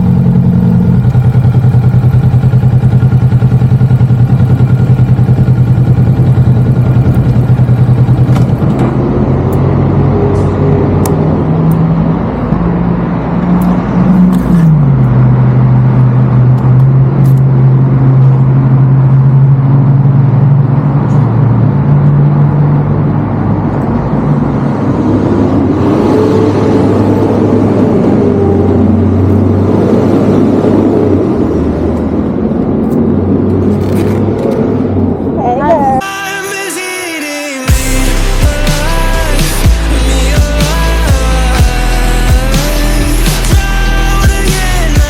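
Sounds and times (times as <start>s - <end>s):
motorcycle engine running: 0.0s - 23.6s, 37.7s - 45.0s.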